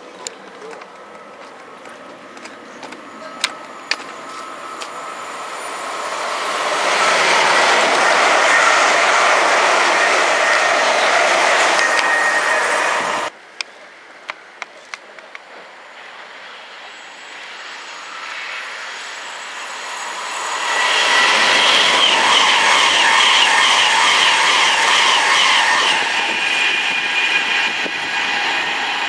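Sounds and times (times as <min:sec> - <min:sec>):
electric train high whine: 0:00.0 - 0:29.0
rush of wheels and air: 0:04.0 - 0:13.3, 0:17.2 - 0:29.0.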